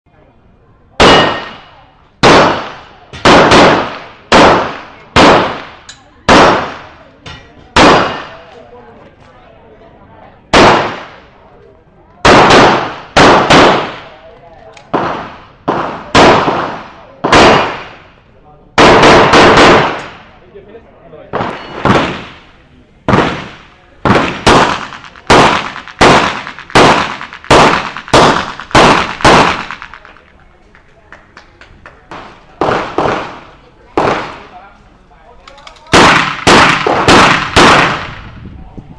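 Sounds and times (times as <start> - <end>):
gunshots with echoing decay: 1.0 - 7.1, 7.7 - 8.6, 10.5 - 11.3, 12.2 - 18.1, 18.8 - 20.4, 21.3 - 30.3, 32.1 - 34.6, 35.9 - 38.3.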